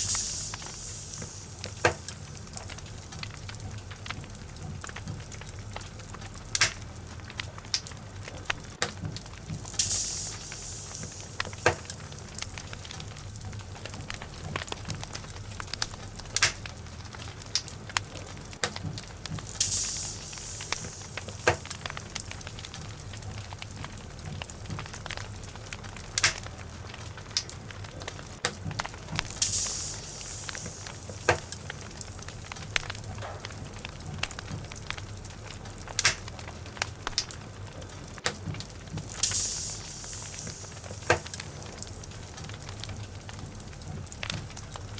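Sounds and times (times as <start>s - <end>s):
brief fire hiss: 0.0s - 2.9s, 9.6s - 13.2s, 19.5s - 22.4s, 29.3s - 32.1s, 39.1s - 41.8s
fire crackling and popping: 0.0s - 44.9s
low rumble of flame: 0.0s - 44.9s.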